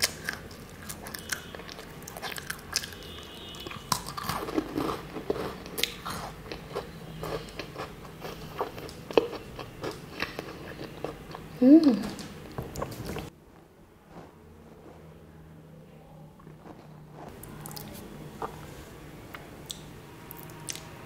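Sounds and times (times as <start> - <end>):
crunching crisp biscuits: 0.0 - 11.6, 16.4 - 18.7.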